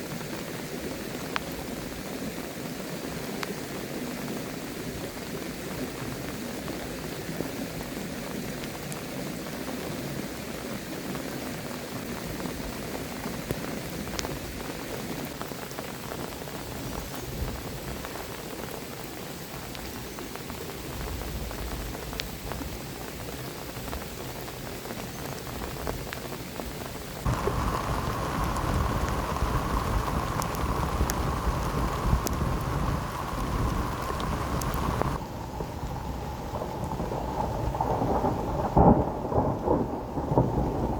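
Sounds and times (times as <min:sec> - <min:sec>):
heavy rain falling: 0:00.0 - 0:40.9
low rumble: 0:27.3 - 0:40.7.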